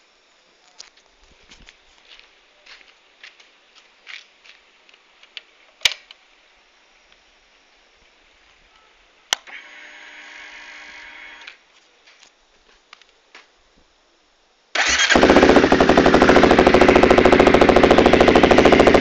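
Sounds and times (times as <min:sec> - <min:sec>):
fuel pump whirring: 0:14.8 - 0:19.0.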